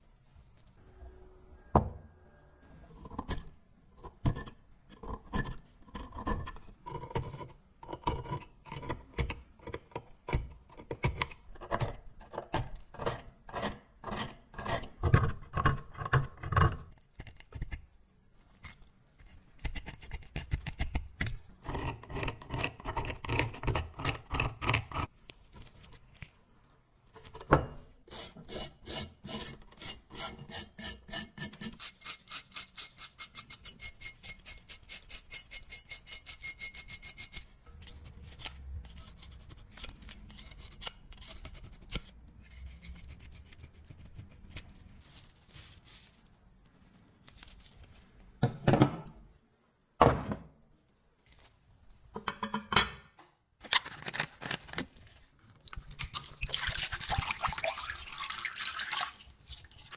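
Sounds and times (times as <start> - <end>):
filing metal by hand: 19.2 - 25.1, 28.0 - 44.8.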